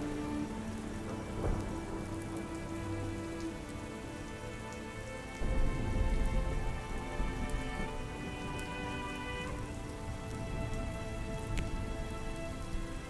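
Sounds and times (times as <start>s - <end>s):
ambient music pad: 0.0s - 13.0s
soft rain: 0.0s - 13.0s.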